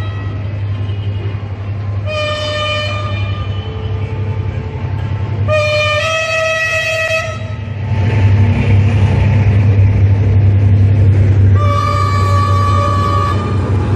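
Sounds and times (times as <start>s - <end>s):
train rumble: 0.0s - 13.9s
low engine drone: 2.8s - 13.9s
locomotive horn blasts: 5.5s - 7.6s, 11.6s - 13.8s.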